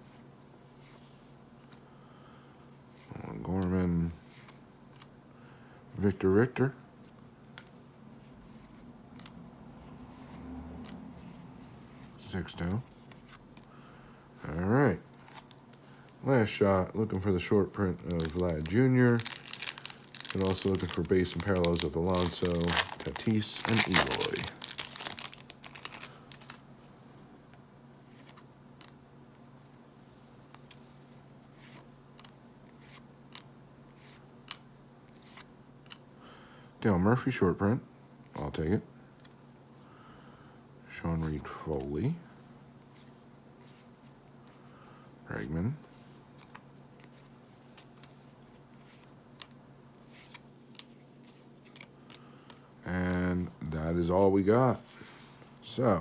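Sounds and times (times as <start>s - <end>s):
low steady hum: 0.0s - 56.0s
cards being flipped through: 7.1s - 13.7s, 14.6s - 26.6s, 46.4s - 53.2s.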